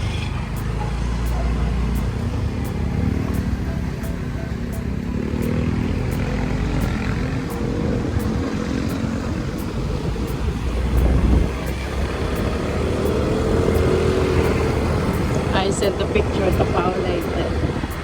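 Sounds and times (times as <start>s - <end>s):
motorbike engine running: 0.0s - 18.0s
wind and road noise: 0.0s - 18.0s.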